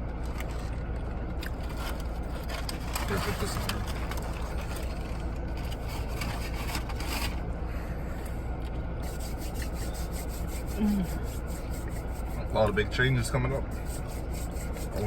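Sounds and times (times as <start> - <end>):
low hum: 0.0 - 15.0
paper wrappers rustling: 1.6 - 7.4.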